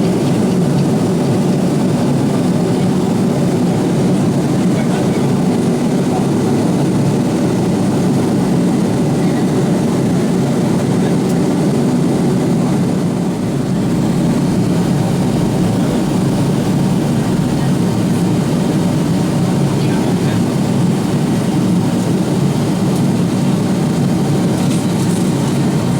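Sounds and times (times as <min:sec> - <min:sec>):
airflow noise: 0:00.0 - 0:25.9
jet engines droning: 0:00.0 - 0:25.9.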